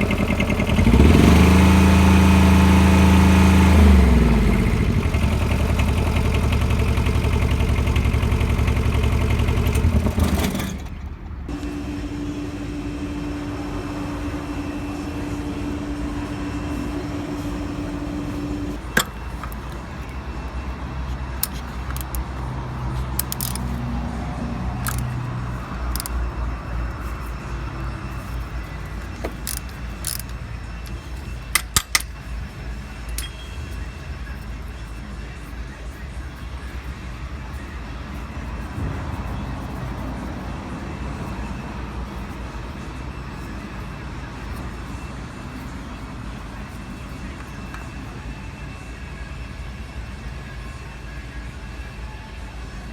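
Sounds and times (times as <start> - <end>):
diesel engine idling: 0.0 - 48.8
steady hum: 11.5 - 23.2
sharp clicks: 24.8 - 25.1.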